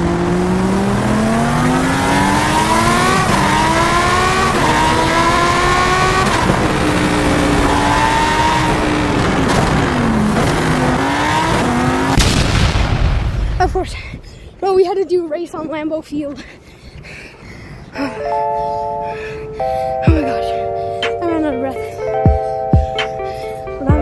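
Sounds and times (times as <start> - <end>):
car engine accelerating: 0.0 - 12.2.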